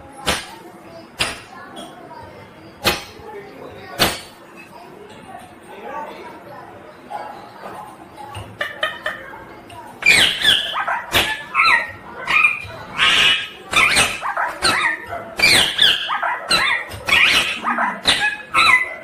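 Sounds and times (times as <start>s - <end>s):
parakeet harsh calls: 10.0s - 19.0s.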